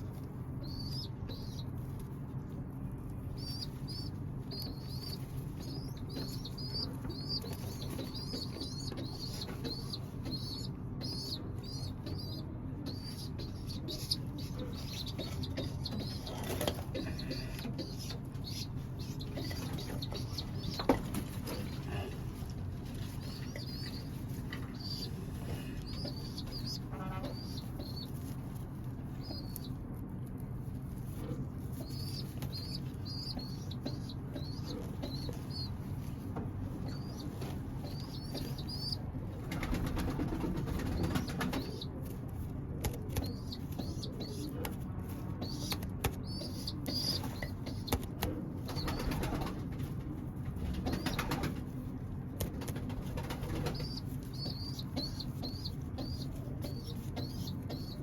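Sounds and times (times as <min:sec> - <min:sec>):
pigeons chirping: 0:00.6 - 0:01.8, 0:03.1 - 0:29.8, 0:31.1 - 0:42.2, 0:42.8 - 0:51.8, 0:52.5 - 0:58.0
wings flapping: 0:37.4 - 0:41.8, 0:48.6 - 0:50.0, 0:50.6 - 0:51.7, 0:52.4 - 0:54.0.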